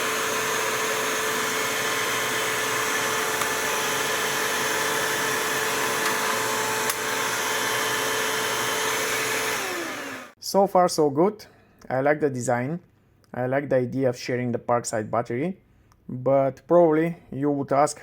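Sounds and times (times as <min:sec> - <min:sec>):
vacuum cleaner whine: 0:00.0 - 0:10.4.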